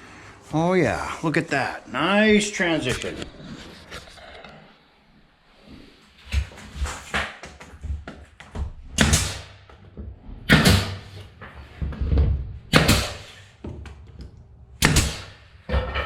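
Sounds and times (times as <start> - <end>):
hammer striking nails into wood: 9.0 - 9.6, 10.5 - 11.1, 12.7 - 13.4, 14.8 - 15.4.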